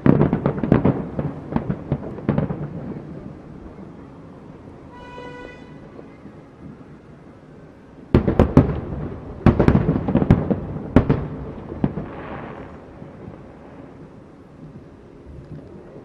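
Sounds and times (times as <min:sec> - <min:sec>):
fireworks bangs: 0:00.0 - 0:07.2, 0:08.1 - 0:14.9.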